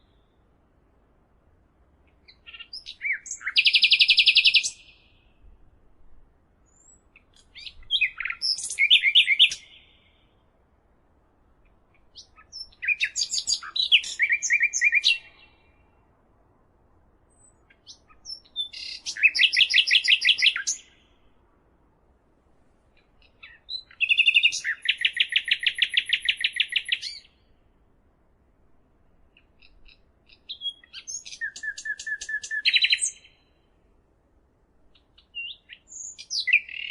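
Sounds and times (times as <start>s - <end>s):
songbird singing high trills: 2.2s - 5.3s, 6.7s - 10.3s, 12.2s - 15.8s, 17.3s - 21.1s, 23.2s - 27.5s, 29.5s - 33.6s, 35.0s - 36.9s.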